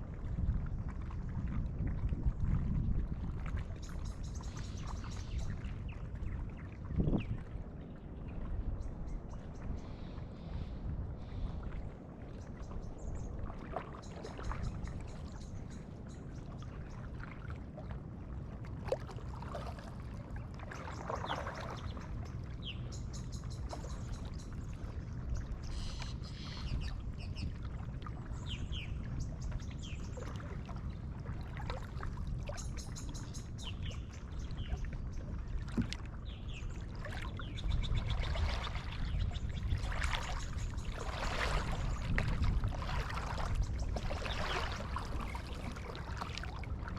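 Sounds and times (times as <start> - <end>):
paddle strokes splashing: 9.6 - 15.8, 16.4 - 22.4, 30.1 - 32.9, 34.1 - 46.9.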